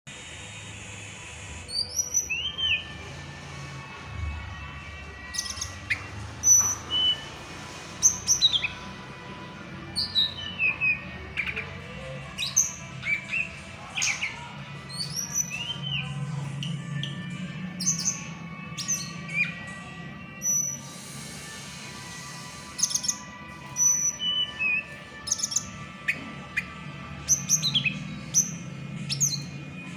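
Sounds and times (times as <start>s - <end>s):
small bird chirping and whistling: 1.6s - 2.9s, 5.2s - 7.4s, 17.8s - 19.6s, 20.4s - 21.4s, 22.1s - 29.5s.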